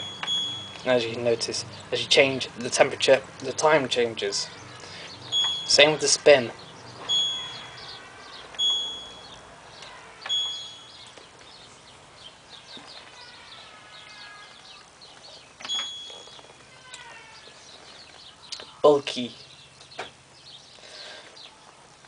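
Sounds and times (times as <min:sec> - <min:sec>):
washing machine beeps: 0:00.0 - 0:00.9, 0:05.3 - 0:06.0, 0:07.0 - 0:07.9, 0:08.6 - 0:09.4, 0:10.2 - 0:11.0, 0:15.6 - 0:16.5.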